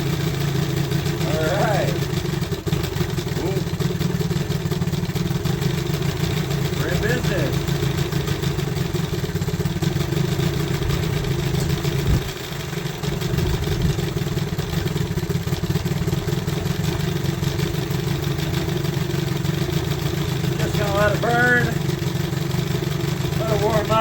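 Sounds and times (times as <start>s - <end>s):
outboard motor idling: 0.0s - 24.0s.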